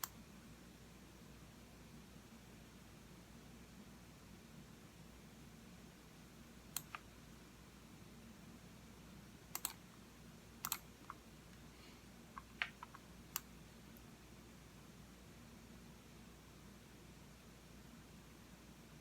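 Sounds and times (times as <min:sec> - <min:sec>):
computer mouse clicks: 0:06.7 - 0:07.1, 0:09.5 - 0:09.8, 0:10.6 - 0:11.2, 0:12.3 - 0:14.1.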